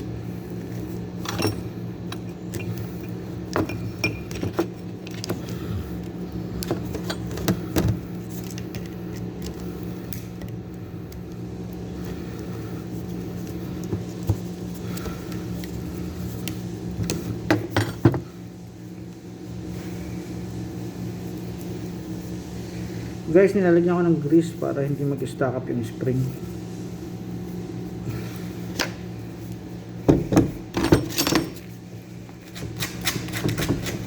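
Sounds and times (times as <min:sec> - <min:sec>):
steady low hum: 0:00.0 - 0:34.0
metal tools clinking: 0:01.2 - 0:04.6, 0:30.7 - 0:31.7.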